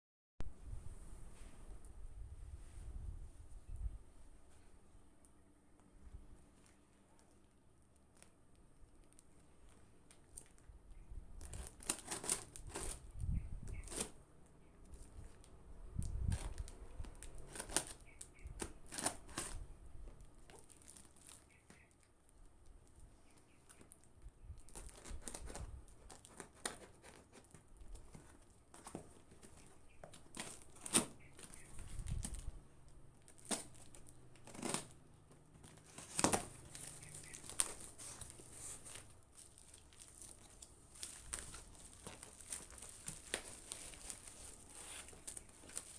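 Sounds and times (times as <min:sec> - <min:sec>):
packaging tearing and crinkling: 0:11.4 - 0:14.2, 0:15.0 - 0:19.7, 0:20.4 - 0:21.9, 0:24.6 - 0:32.5, 0:33.2 - 0:45.9.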